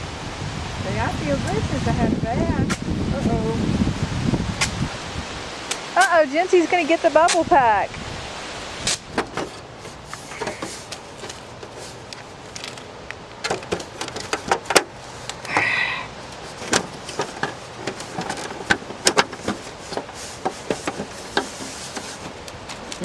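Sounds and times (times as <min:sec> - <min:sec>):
hands clicking and knocking parts: 0:09.1 - 0:15.7, 0:16.3 - 0:23.0.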